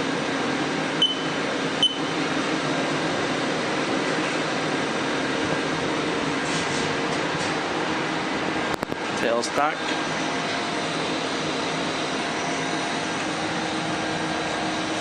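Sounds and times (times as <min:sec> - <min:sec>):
steady machine hum: 0:00.0 - 0:15.0
sharp clicks with high beep: 0:01.0 - 0:02.1.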